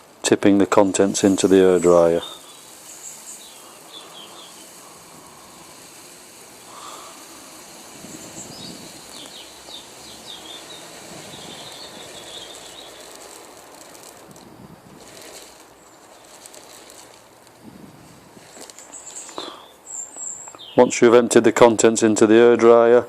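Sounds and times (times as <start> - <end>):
small birds chirping: 0.7 - 21.2
handling noise: 1.2 - 19.6.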